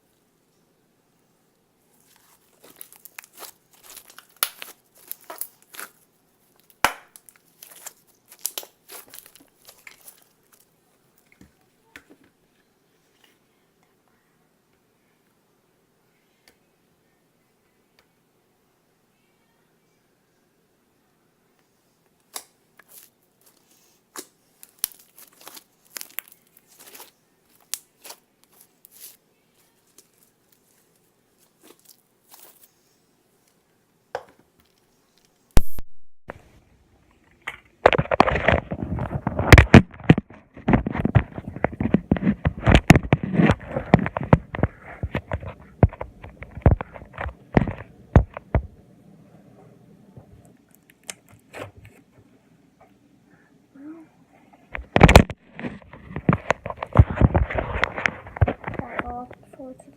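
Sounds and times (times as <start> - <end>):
slime crackling and popping: 1.9 - 11.3, 22.2 - 32.7.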